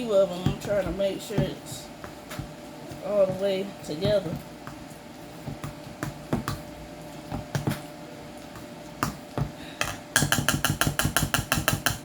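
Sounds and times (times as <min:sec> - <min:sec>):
utensil stirring mashed potatoes: 0:00.0 - 0:12.0
utensil tapping against pot: 0:08.6 - 0:12.0.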